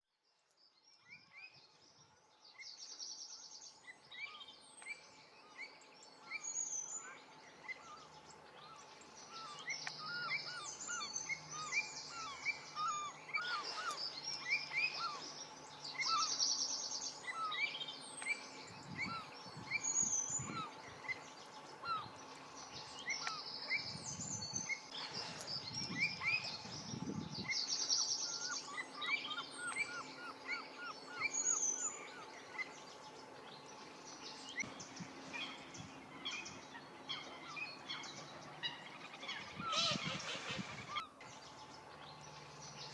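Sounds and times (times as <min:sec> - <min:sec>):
songbirds chirping: 0:00.1 - 0:42.9.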